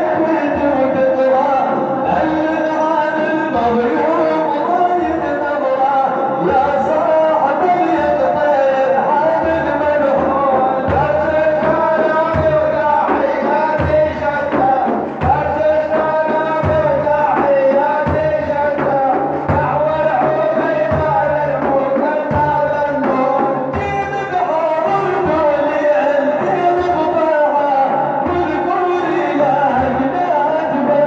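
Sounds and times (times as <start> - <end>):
man singing: 0.0 - 31.0
deep steady beat: 9.0 - 31.0.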